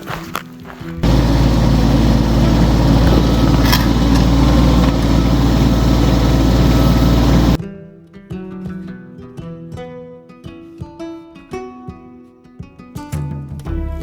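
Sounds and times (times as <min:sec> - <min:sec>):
tractor engine running: 0:01.0 - 0:07.6.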